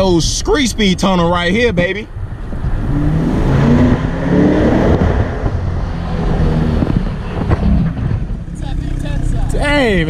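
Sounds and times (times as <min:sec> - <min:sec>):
sports car engine accelerating: 0:02.2 - 0:10.0.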